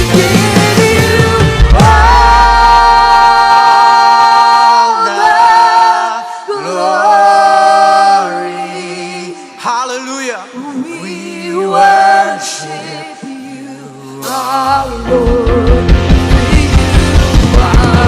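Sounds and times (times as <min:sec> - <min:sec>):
voices singing unaccompanied: 0:00.0 - 0:18.0
band low note: 0:01.6 - 0:03.4.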